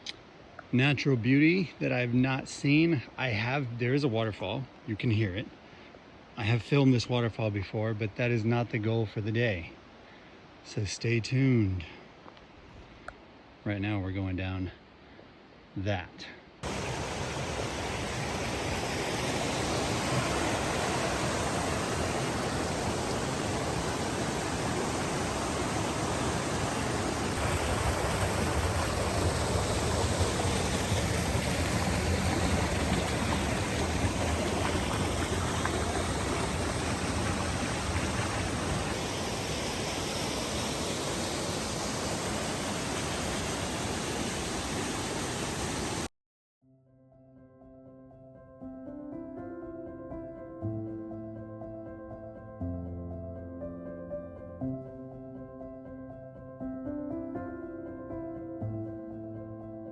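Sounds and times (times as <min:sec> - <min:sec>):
waterfall rushing: 0:16.6 - 0:46.1.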